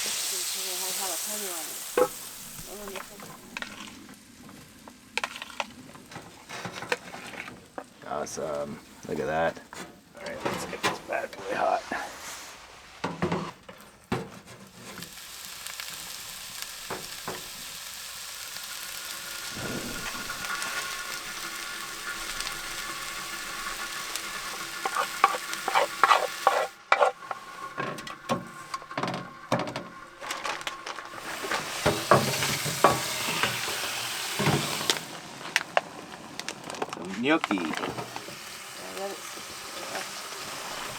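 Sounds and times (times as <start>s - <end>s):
food sizzling in a pan: 0.0s - 9.4s, 10.2s - 13.5s, 14.6s - 40.9s
utensil scraping a pan: 1.8s - 4.6s, 5.2s - 8.0s, 19.4s - 35.3s.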